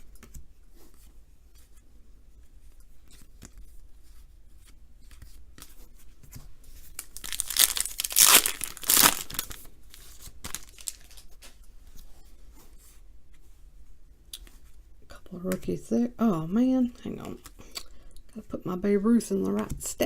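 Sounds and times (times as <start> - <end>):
cards shuffled: 4.6 - 12.1
wrapper tearing and crinkling: 6.9 - 11.4.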